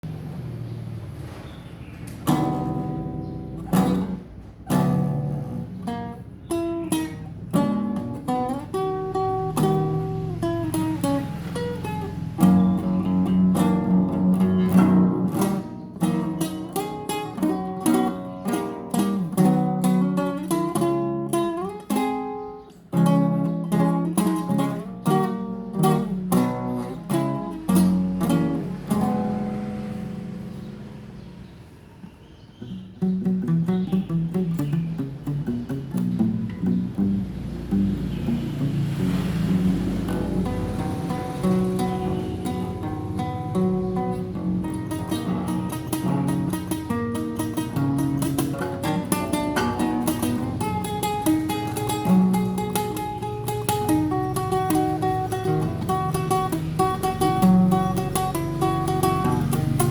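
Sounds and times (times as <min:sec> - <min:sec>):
solo classical guitar: 0:00.0 - 0:59.9.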